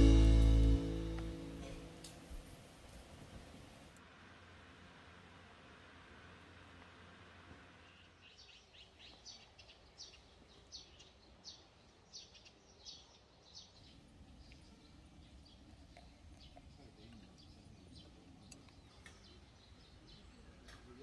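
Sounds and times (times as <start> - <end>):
bird chirping: 7.8 - 21.0.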